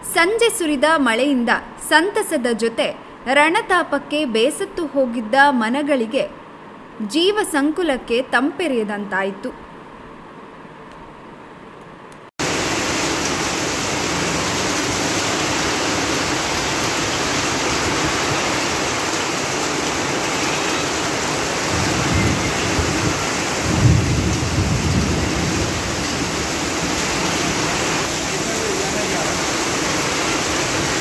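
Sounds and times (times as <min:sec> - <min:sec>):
heavy rain pouring: 0:12.4 - 0:31.0.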